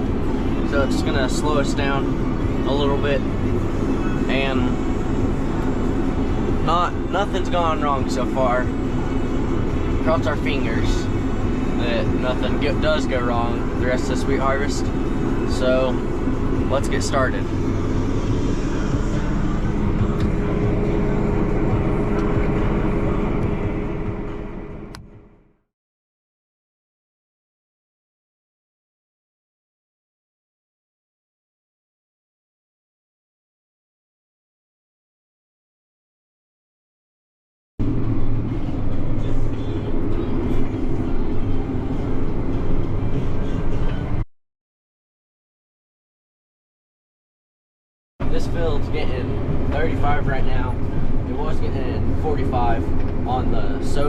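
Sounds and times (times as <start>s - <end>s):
combine harvester rumble: 0.0s - 25.5s, 37.8s - 44.2s, 48.2s - 54.0s
diesel machinery engine drone: 0.0s - 25.6s, 37.8s - 44.2s, 48.2s - 54.0s.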